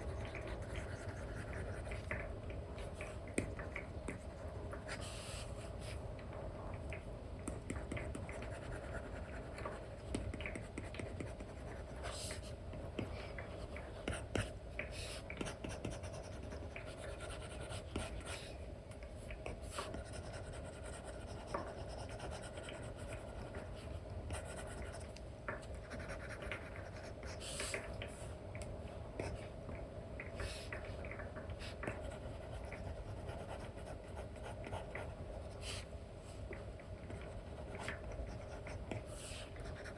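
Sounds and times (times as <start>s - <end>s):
stylus scratching and tapping: 0.0s - 5.0s, 6.9s - 18.4s, 24.3s - 28.1s
low steady hum: 0.0s - 39.9s.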